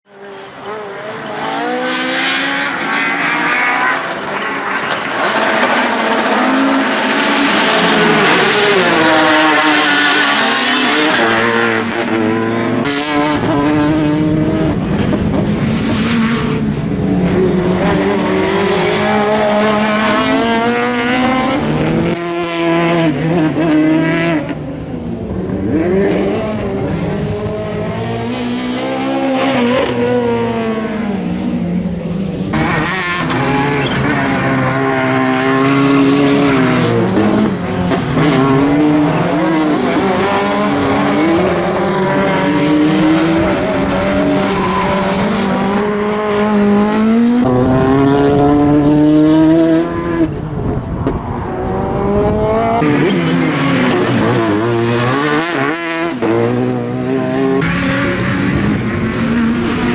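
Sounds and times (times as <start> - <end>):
rally car engine revving: 0.0 - 59.9
tyres squealing: 32.6 - 39.4.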